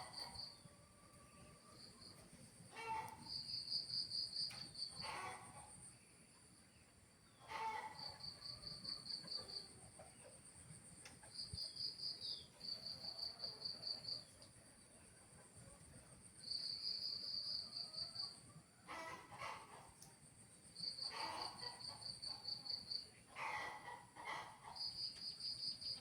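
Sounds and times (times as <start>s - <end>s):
crickets chirping: 2.8s - 5.1s, 11.3s - 14.3s, 16.0s - 18.3s, 24.7s - 26.0s.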